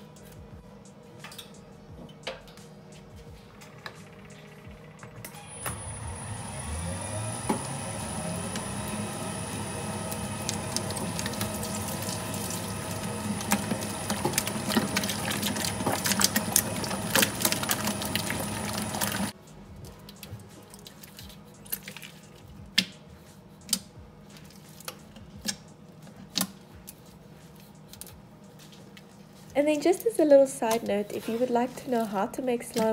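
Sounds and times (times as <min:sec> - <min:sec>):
electric mixer motor running: 0:05.3 - 0:19.4.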